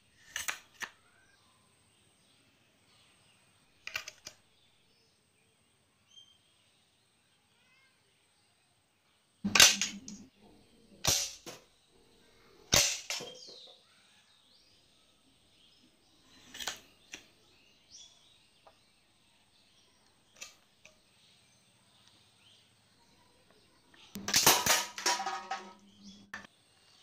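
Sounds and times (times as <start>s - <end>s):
toy gun cracks: 0.2s - 1.0s, 3.9s - 4.4s, 11.0s - 11.6s, 12.7s - 13.5s, 16.5s - 17.3s, 24.1s - 25.8s.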